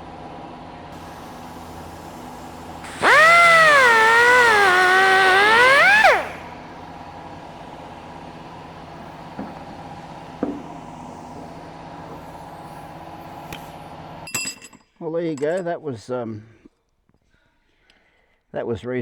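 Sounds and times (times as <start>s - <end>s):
die grinder cutting whine: 1.0s - 7.2s.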